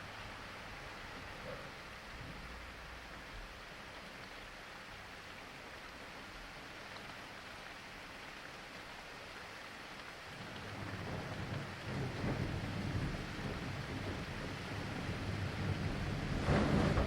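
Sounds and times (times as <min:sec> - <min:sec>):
rain falling: 0:00.0 - 0:17.0
thunder rumbling: 0:10.4 - 0:17.0
sharp thunder crack: 0:10.9 - 0:17.0.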